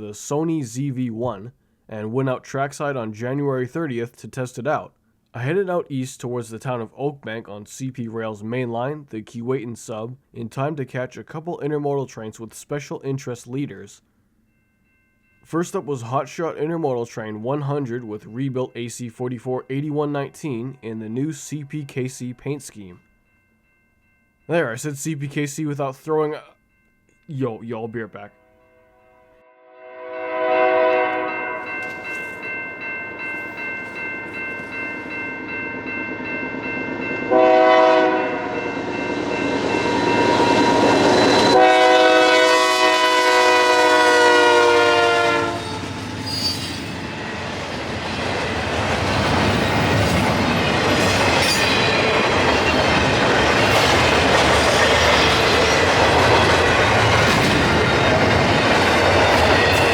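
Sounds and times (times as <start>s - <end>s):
locomotive air horn blasts: 29.5s - 32.4s, 37.3s - 38.6s, 39.8s - 45.8s
train cars rumbling by: 30.7s - 59.9s.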